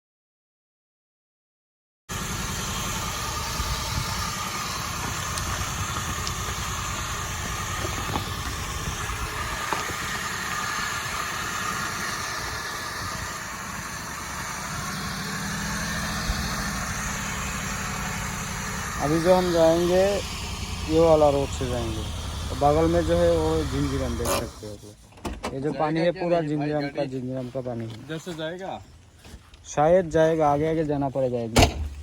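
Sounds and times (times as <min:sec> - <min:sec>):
car engine running: 0:02.1 - 0:24.8.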